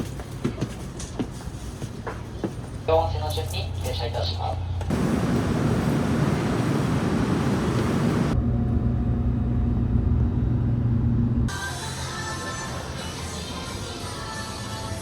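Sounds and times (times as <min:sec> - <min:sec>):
train running rumble: 0:00.0 - 0:11.5.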